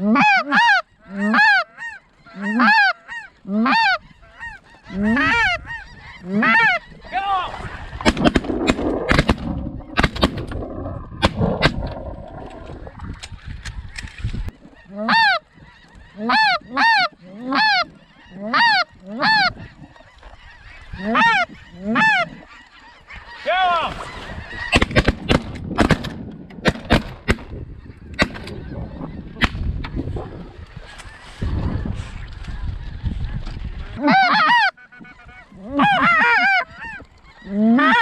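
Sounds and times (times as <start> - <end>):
goose honks: 0.0 - 7.6, 14.7 - 24.8, 34.0 - 38.0.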